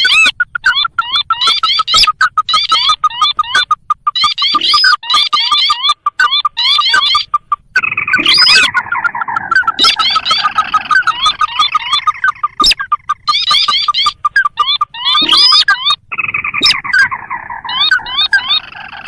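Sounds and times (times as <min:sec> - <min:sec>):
chattering bird notes: 0:00.0 - 0:19.0.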